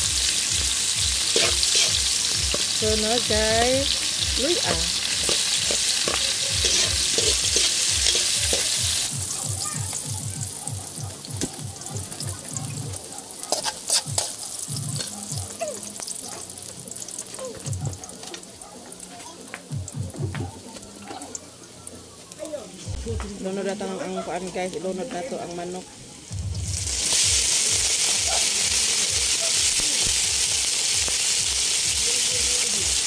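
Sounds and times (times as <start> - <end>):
aromatics sizzling in hot oil: 0.0 - 33.0
metal spatula scraping wok: 1.2 - 9.1, 13.5 - 15.2.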